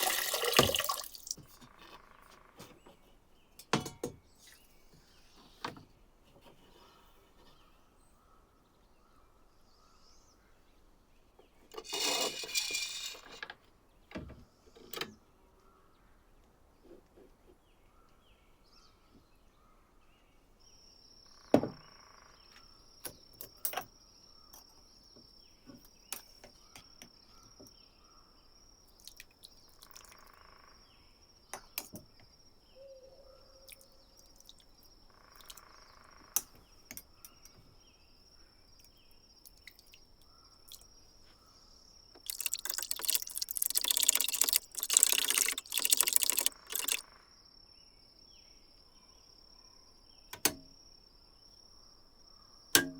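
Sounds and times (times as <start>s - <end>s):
knocks and clicks on metal: 3.6s - 4.2s.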